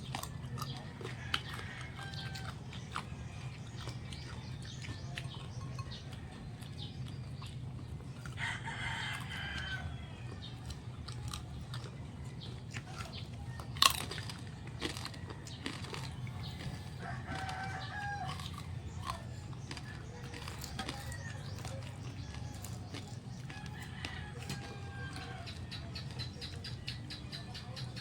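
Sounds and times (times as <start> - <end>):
chewing and crunching: 0.0 - 28.0
rooster crowing: 1.0 - 2.8, 8.3 - 10.8, 14.8 - 25.9.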